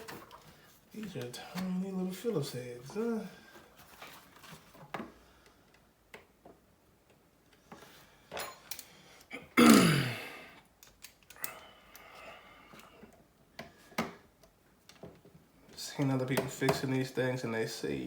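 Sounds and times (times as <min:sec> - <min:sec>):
small tools clicking and tapping: 0:08.3 - 0:09.3, 0:10.7 - 0:12.0
person grunting: 0:09.6 - 0:10.5.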